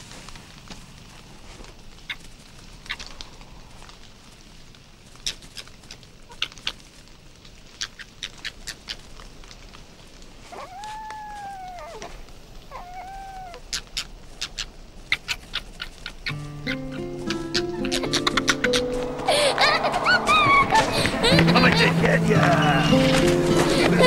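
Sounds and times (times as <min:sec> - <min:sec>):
fox calling: 0:10.5 - 0:24.0.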